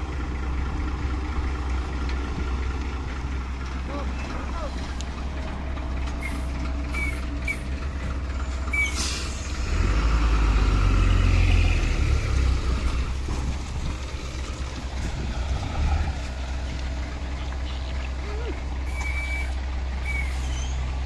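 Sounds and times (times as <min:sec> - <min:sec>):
diesel truck engine running: 0:00.0 - 0:21.0
short hiss of air: 0:08.8 - 0:09.6.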